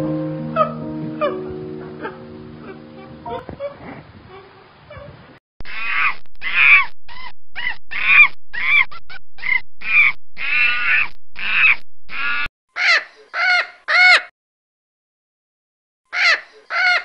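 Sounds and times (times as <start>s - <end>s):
bird harsh calls: 5.7s - 14.3s, 16.1s - 17.0s
bright bird calls: 9.4s - 13.7s.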